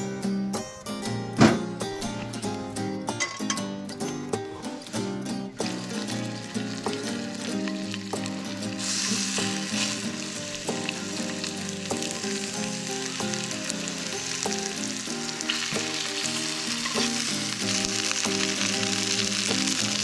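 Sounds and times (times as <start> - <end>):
music of plucked notes: 0.0 - 20.0
food sizzling as it fries: 4.4 - 20.0.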